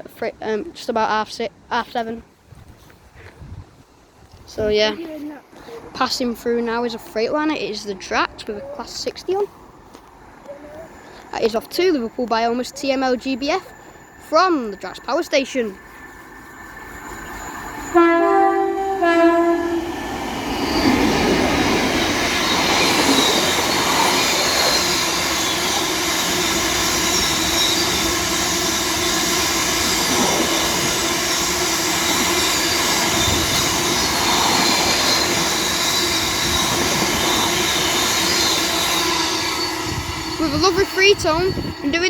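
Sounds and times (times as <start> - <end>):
wheel and rail noise: 0.0 - 42.0
locomotive engine note: 17.3 - 20.2
diesel locomotive horn: 17.8 - 20.0.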